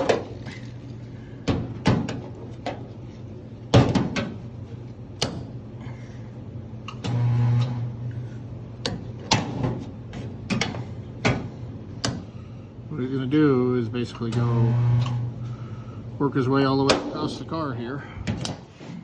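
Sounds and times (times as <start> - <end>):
electrical hum: 0.0 - 19.0
spot welder buzzing: 6.9 - 9.2, 14.2 - 16.0.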